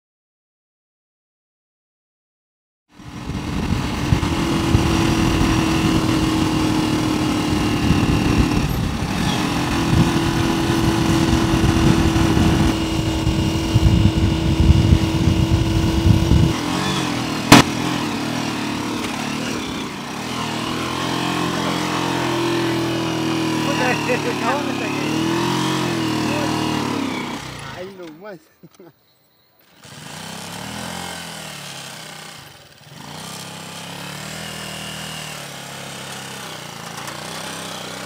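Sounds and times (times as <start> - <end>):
small motorcycle engine running: 2.9 - 28.1, 29.6 - 38.0
sharp knock: 17.5 - 17.9.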